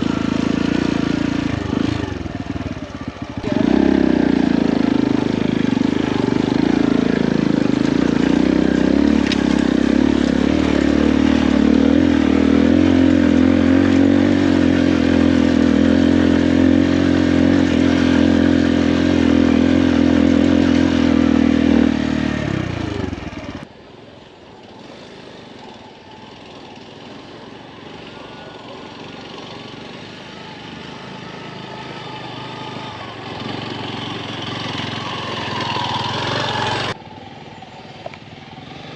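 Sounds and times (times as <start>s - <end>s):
motorcycle engine running: 0.0s - 23.7s, 24.6s - 38.9s.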